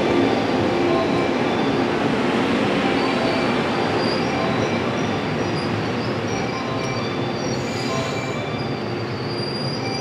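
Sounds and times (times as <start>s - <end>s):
high wheel squeals: 2.8s - 10.0s.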